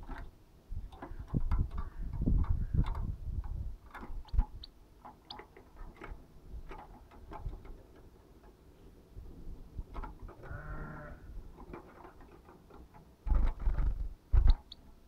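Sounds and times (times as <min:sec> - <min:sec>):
bird pecking clicks and taps: 0:00.9 - 0:08.6.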